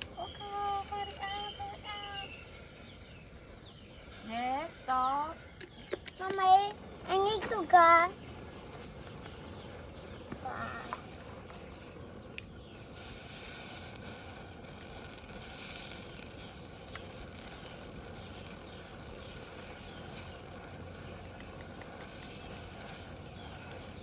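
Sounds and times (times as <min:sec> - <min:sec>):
shrimp sizzling in a pan: 0:07.2 - 0:24.0.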